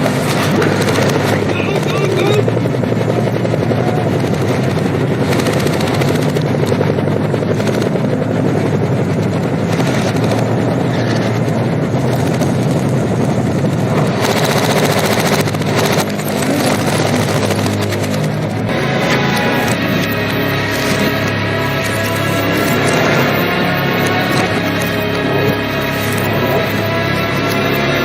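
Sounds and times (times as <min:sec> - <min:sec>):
helicopter noise: 0:00.0 - 0:28.0
reversed machine-gun fire: 0:13.9 - 0:18.6.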